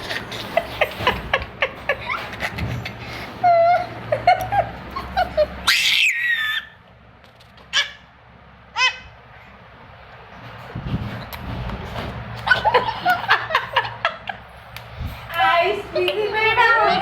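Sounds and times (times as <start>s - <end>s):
falling yelps: 5.6s - 6.8s.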